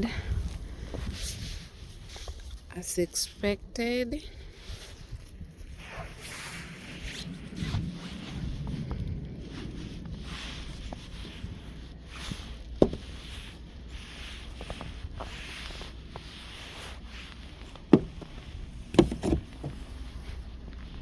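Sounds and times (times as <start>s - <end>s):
snow brushed off a car: 4.4s - 21.0s
sharp knocks: 17.9s - 18.3s, 19.0s - 19.8s.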